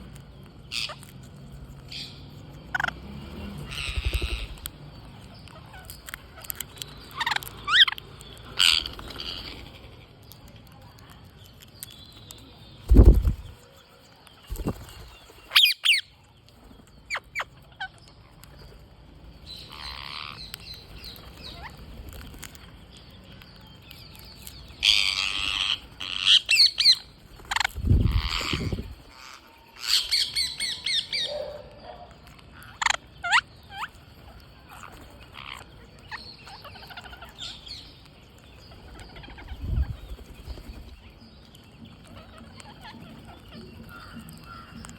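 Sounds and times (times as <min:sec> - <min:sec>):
parrots squawking: 0:03.6 - 0:04.7, 0:24.8 - 0:31.4, 0:32.6 - 0:34.0.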